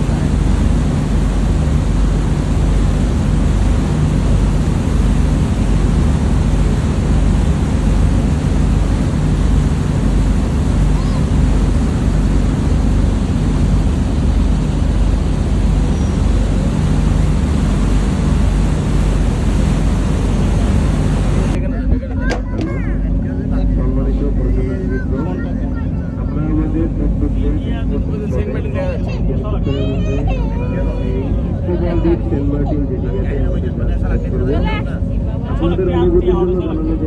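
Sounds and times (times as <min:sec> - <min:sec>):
wind rushing over microphone: 0:00.0 - 0:22.1
sea rushing along hull: 0:00.0 - 0:37.0
ship engines droning: 0:00.0 - 0:37.0.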